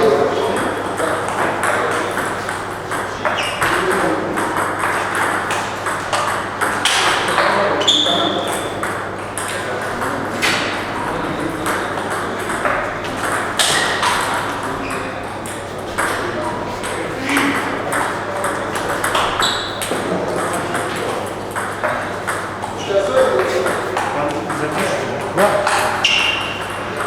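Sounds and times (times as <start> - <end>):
background chatter: 0.0 - 27.0
table tennis balls clicking: 0.5 - 27.0.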